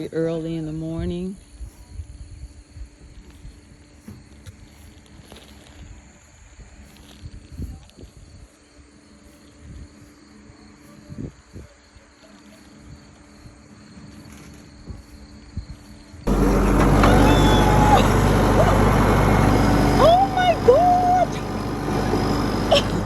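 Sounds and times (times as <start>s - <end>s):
loud vehicle engine running: 16.3s - 23.0s
voices: 16.3s - 23.0s.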